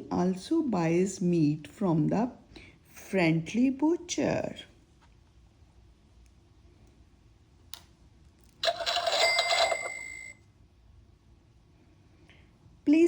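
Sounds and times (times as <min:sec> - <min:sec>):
electronic cash register chime: 0:08.6 - 0:10.4.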